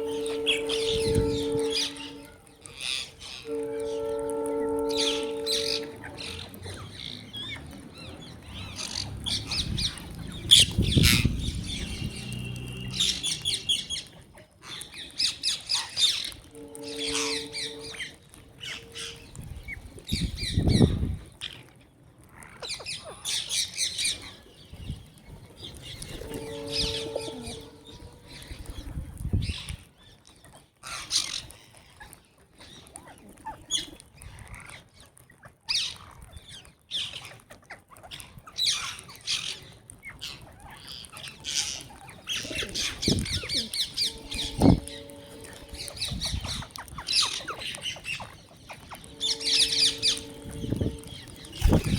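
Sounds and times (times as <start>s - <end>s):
lower held bird call: 0.0s - 6.5s, 16.4s - 19.2s, 26.0s - 28.7s, 42.3s - 47.6s, 48.9s - 51.9s
small birds chirping: 4.9s - 51.9s.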